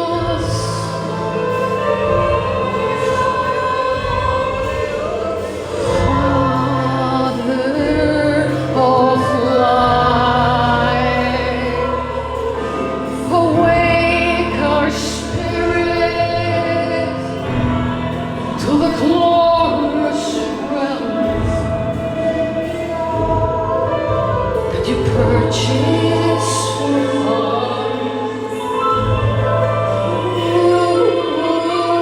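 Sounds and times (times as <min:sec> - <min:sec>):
choir singing held notes: 0:00.0 - 0:32.0
sustained low chords: 0:00.0 - 0:32.0.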